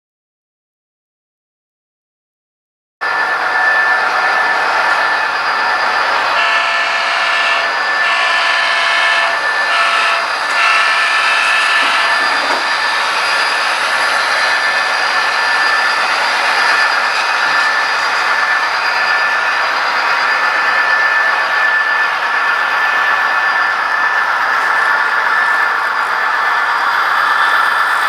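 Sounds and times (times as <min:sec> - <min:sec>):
model train running: 0:03.0 - 0:28.0
train horn blasts: 0:03.1 - 0:24.6.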